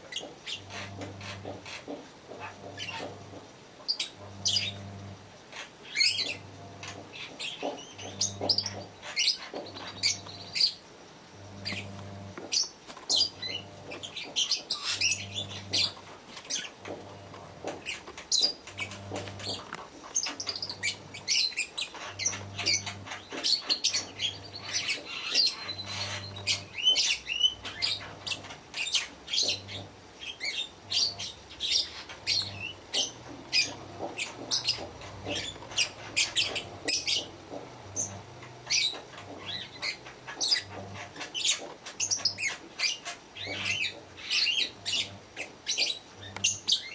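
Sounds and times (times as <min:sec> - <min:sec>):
lovebirds chirping shrilly: 0:17.8 - 0:37.3.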